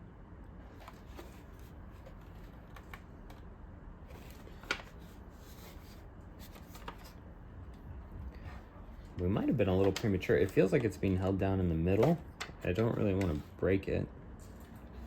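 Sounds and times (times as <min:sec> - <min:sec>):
plastic clicks and rustling: 0:00.8 - 0:03.5, 0:09.1 - 0:10.9.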